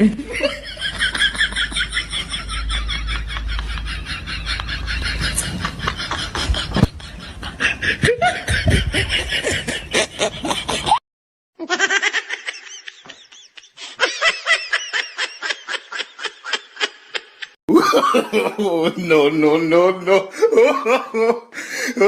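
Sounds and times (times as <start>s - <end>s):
rapid rhythmic laughter: 0.3s - 11.0s.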